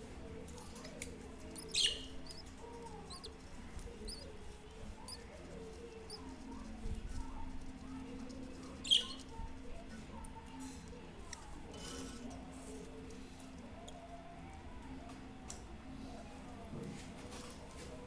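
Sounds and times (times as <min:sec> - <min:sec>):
small birds chirping: 0:00.5 - 0:14.2.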